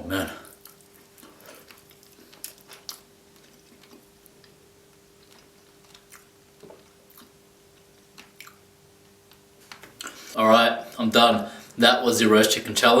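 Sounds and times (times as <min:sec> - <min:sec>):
faint steady hum: 0:00.0 - 0:13.0
close chewing and mouth clicks: 0:00.5 - 0:10.2.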